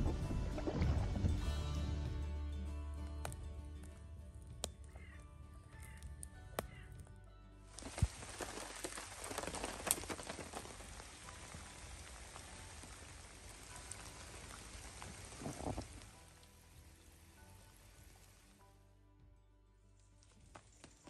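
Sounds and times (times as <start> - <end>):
rain pattering on a canoe hull: 7.7 - 18.5
rain falling on a lake: 7.7 - 18.6.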